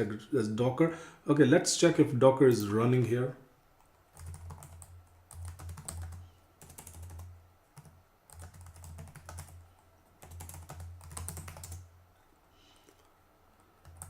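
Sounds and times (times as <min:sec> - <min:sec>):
typing on computer keyboard: 0:03.8 - 0:09.6, 0:10.2 - 0:11.9, 0:13.8 - 0:14.0.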